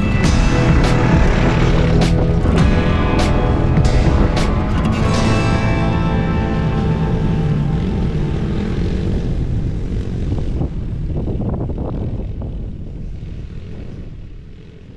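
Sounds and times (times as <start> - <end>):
engine rumbling: 0.0 - 14.9.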